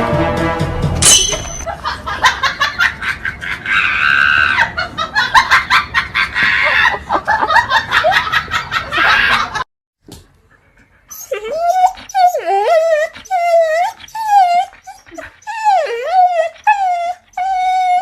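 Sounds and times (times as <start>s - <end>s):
person laughing hard: 1.7s - 9.6s.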